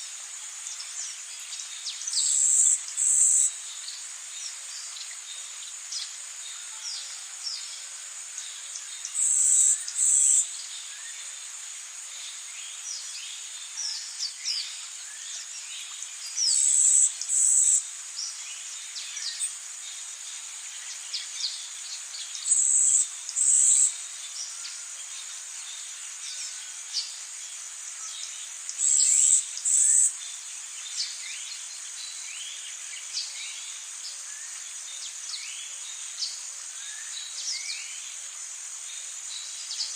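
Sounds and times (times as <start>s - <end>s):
high-pitched insect drone: 0.0s - 39.9s
double insect buzz: 22.4s - 30.2s.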